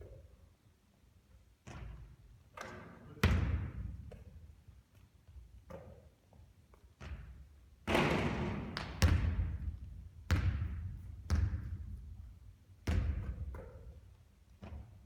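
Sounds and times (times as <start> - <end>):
basketball bouncing on court: 3.2 - 4.2, 7.0 - 14.0.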